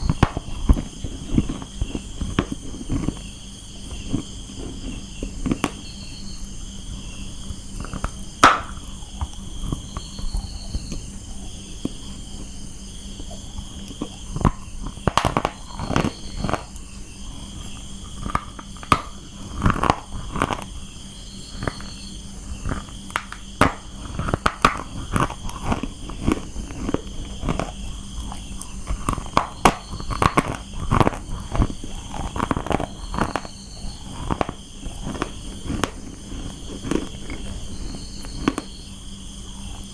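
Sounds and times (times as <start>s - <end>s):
crickets chirping: 0.0s - 39.9s
crunching and chewing: 0.0s - 39.9s.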